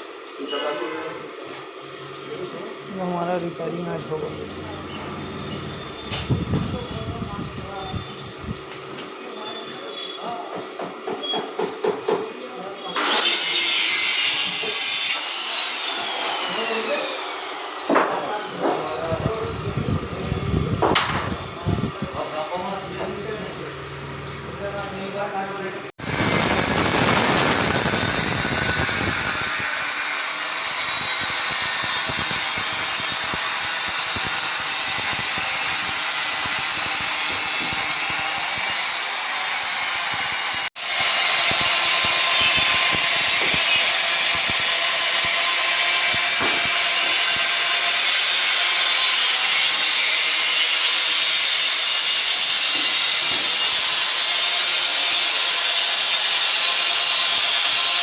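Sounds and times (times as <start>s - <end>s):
power tool grinding tile: 13.0s - 20.2s, 26.0s - 58.0s.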